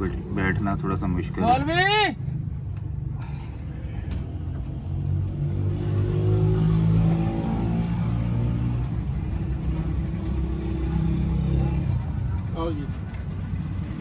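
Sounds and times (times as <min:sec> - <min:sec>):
petrol engine running: 0:04.0 - 0:14.0.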